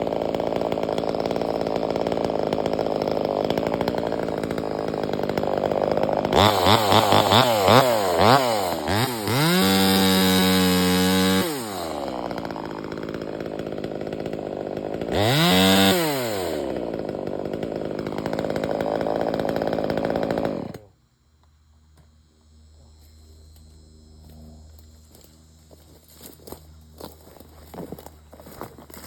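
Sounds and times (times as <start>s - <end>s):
chainsaw engine revving: 0.0s - 20.9s.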